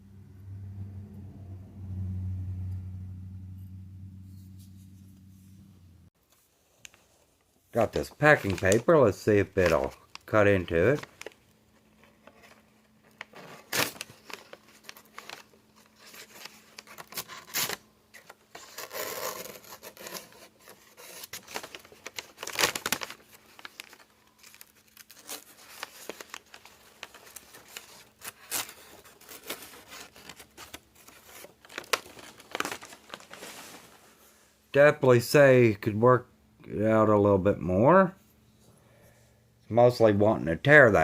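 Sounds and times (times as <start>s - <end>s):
knife cutting and tearing paper: 18.5s - 32.9s.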